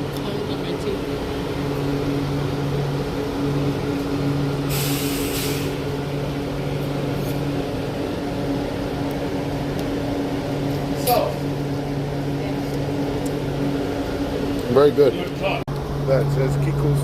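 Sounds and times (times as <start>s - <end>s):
vehicle engine idling: 0.0s - 17.0s
air hissing: 4.6s - 5.9s.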